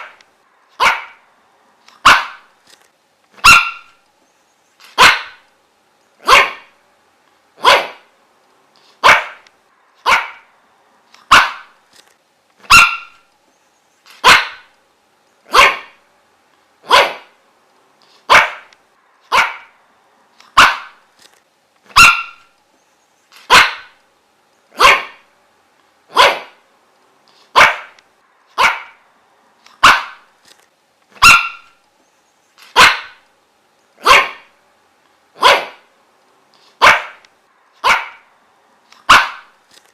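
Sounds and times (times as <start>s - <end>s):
dog barking: 0.8s - 1.2s, 2.0s - 2.5s, 3.4s - 4.0s, 4.9s - 5.4s, 6.2s - 6.8s, 7.6s - 8.1s, 9.0s - 9.4s, 10.0s - 10.5s, 11.3s - 11.8s, 12.7s - 13.2s, 14.2s - 14.7s, 15.5s - 16.0s, 16.8s - 17.4s, 18.3s - 18.7s, 19.3s - 19.8s, 20.5s - 21.0s, 21.9s - 22.5s, 23.4s - 24.0s, 24.7s - 25.3s, 26.1s - 26.6s, 27.5s - 28.0s, 28.6s - 29.0s, 29.8s - 30.3s, 31.2s - 31.8s, 32.7s - 33.2s, 34.0s - 34.5s, 35.4s - 35.9s, 36.8s - 37.2s, 37.8s - 38.3s, 39.0s - 39.5s.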